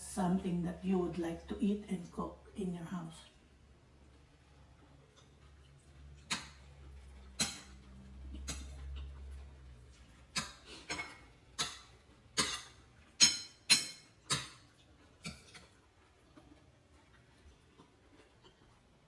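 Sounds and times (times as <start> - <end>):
utensil clinking against dish: 10.3 - 15.7.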